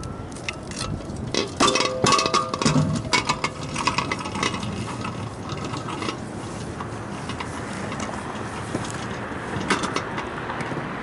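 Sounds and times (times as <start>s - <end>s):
metal rattling and knocking: 0.7s - 6.2s.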